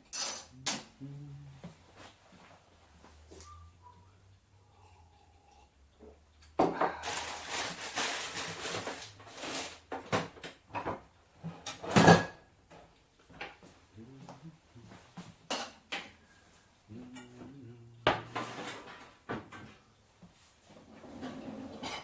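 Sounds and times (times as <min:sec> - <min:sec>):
rustling and rummaging: 0:06.9 - 0:11.1.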